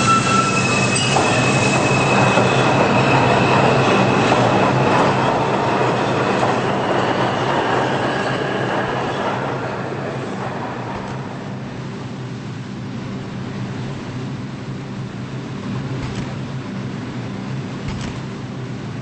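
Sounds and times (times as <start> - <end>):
high wheel squeal: 0.0 - 10.4
subway train on rails: 0.0 - 19.0.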